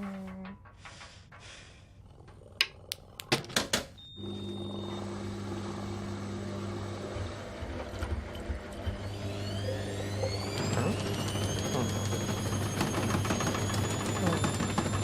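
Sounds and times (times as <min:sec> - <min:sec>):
electric motor hum: 0:04.2 - 0:15.0.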